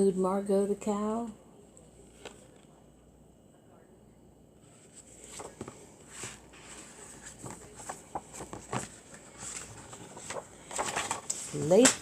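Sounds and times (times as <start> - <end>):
book page turning: 2.1 - 2.7, 4.7 - 12.0.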